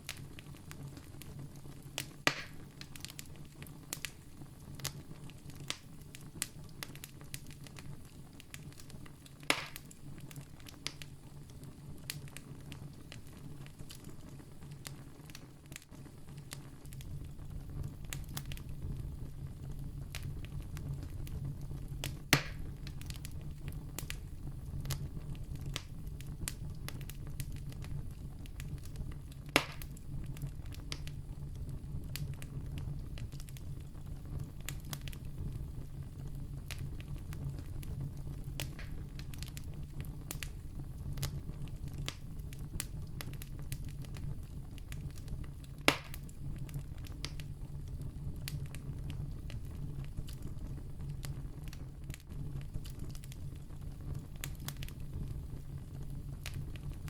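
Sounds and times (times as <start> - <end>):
campfire crackling: 0.0 - 57.0
fire low rumble: 0.0 - 57.0
loud sharp fire pops: 2.0 - 3.3, 8.5 - 11.1, 16.5 - 31.2, 32.0 - 47.5.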